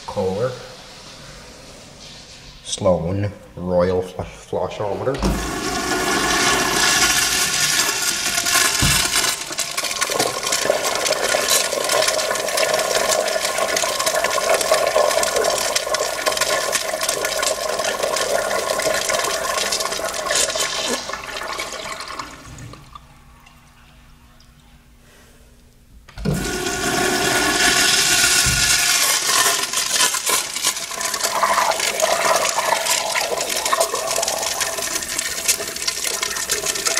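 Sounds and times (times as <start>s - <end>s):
toilet flush water rushing: 5.1s - 23.2s, 26.2s - 36.9s.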